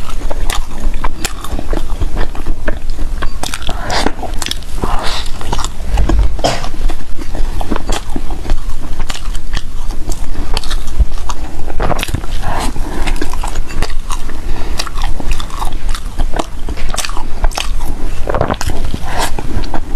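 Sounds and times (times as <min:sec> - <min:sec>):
close chewing and biting food: 0:00.0 - 0:19.9
low steady hum: 0:00.0 - 0:19.9.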